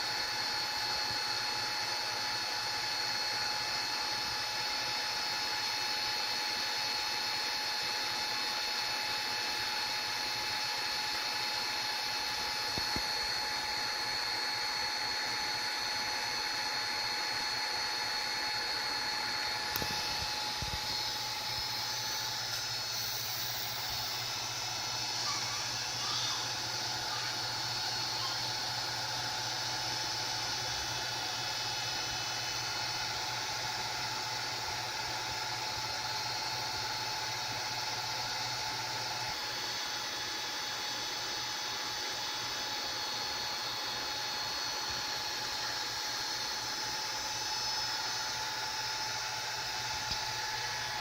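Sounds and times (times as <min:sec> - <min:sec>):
fan running with hiss and hum: 0:00.0 - 0:51.0
whining tones: 0:18.8 - 0:33.1.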